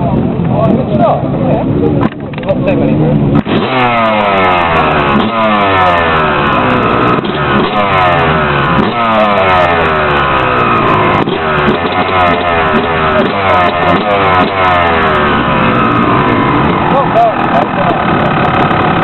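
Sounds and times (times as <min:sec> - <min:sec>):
motorcycle engine revving: 0:02.0 - 0:19.0.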